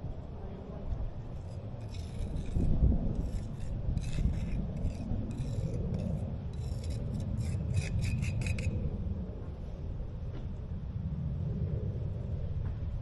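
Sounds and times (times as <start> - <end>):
steady low rumble: 0.0 - 13.0
hand tool scraping rough surface: 1.4 - 8.8.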